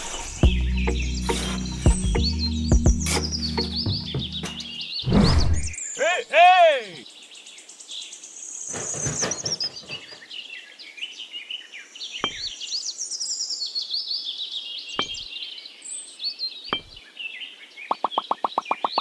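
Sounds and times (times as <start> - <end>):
small birds chirping: 0.0 - 19.0
rustle: 7.0 - 17.9.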